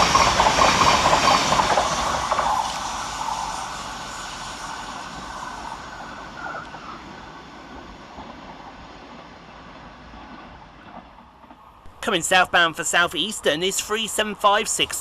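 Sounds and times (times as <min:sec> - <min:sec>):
electric train running: 0:00.0 - 0:09.1.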